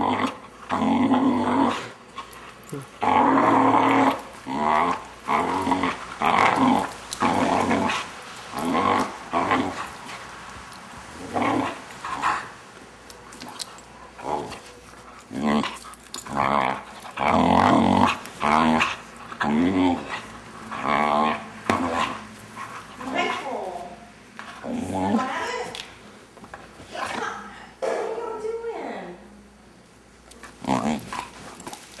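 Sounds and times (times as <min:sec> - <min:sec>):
dog growling and grumbling: 0:00.0 - 0:10.2, 0:11.1 - 0:12.5, 0:13.4 - 0:23.6, 0:24.5 - 0:25.5, 0:30.6 - 0:31.8.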